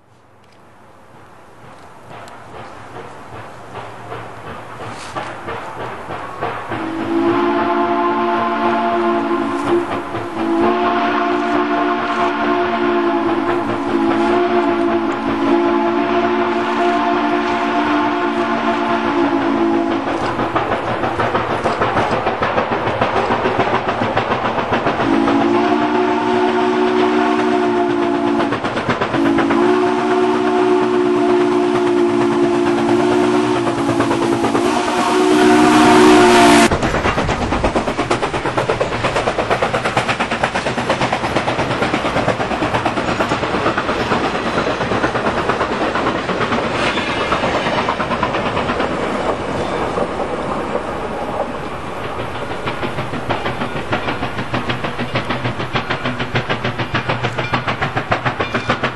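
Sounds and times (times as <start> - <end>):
train rumbling on track: 0.0 - 58.9
train horn chord: 6.8 - 20.2, 25.0 - 28.5, 29.2 - 36.7.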